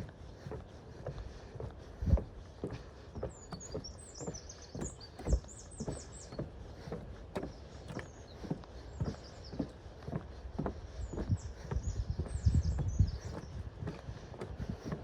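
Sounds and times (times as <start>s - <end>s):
footsteps walking: 0.0s - 15.0s
small bird chirping: 3.3s - 6.8s.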